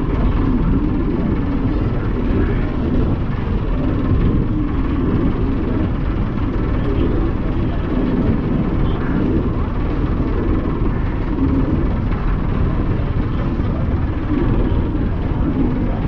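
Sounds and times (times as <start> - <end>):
ferry engines droning: 0.0 - 16.0.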